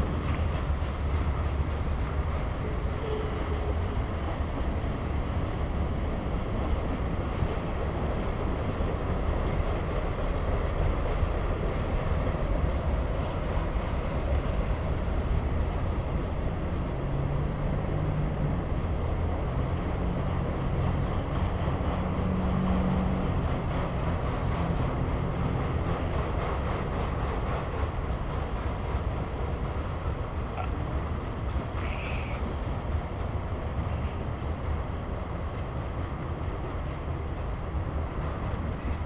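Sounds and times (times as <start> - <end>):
freight train cars rolling: 0.0 - 39.0.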